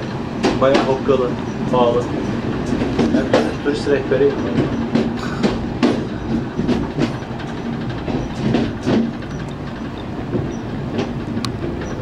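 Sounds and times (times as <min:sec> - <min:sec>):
train running rumble: 0:00.0 - 0:12.0
wheels clicking over rail joints: 0:00.0 - 0:12.0.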